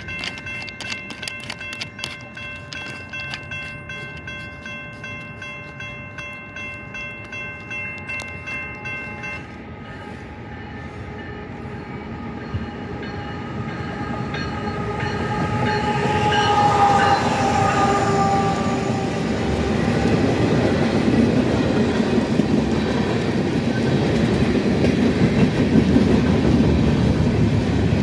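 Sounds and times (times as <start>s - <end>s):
railroad crossing bell ringing: 0.0s - 27.5s
train rumble: 0.0s - 28.0s
train horn: 9.4s - 20.4s.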